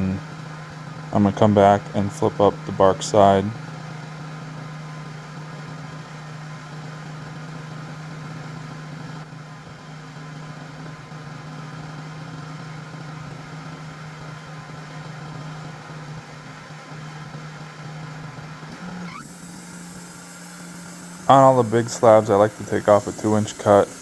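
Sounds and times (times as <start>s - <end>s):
sawmill engine humming: 1.1s - 3.6s, 18.8s - 24.0s.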